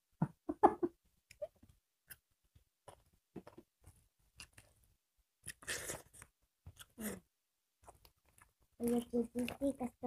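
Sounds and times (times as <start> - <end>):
people chewing and eating: 1.3 - 7.2, 7.8 - 9.8.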